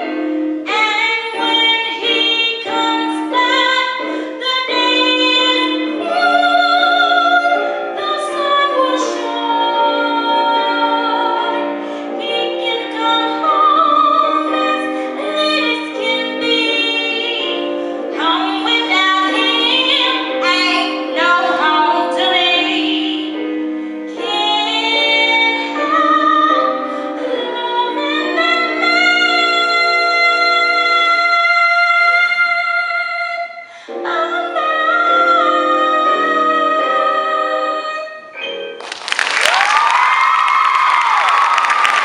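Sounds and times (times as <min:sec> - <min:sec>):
woman singing: 0:00.0 - 0:23.4, 0:24.1 - 0:38.3
musical accompaniment: 0:00.0 - 0:42.0.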